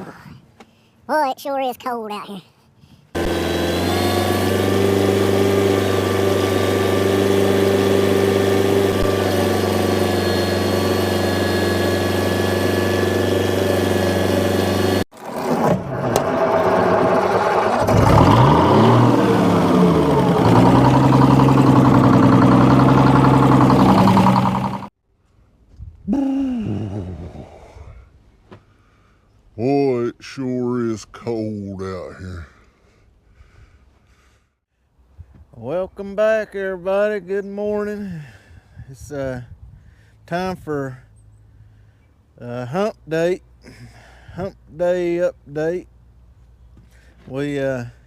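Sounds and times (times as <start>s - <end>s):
engine revving: 3.2s - 24.9s
engine idling: 16.9s - 24.9s.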